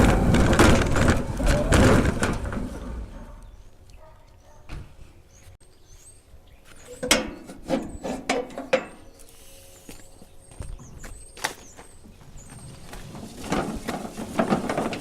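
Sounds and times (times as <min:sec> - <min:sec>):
lawn tractor rumbling: 0:00.0 - 0:03.7, 0:12.0 - 0:15.0.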